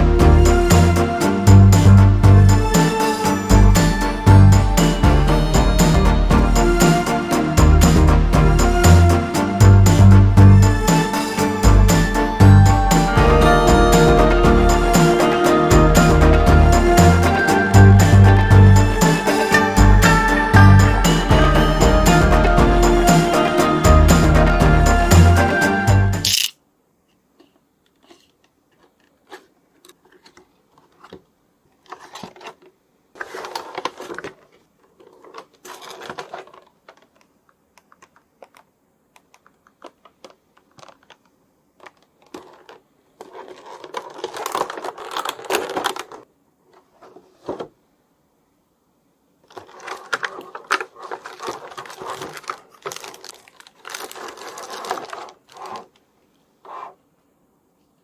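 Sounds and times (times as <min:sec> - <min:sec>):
plastic and cardboard crinkling: 0:27.4 - 0:47.8, 0:49.4 - 0:57.0.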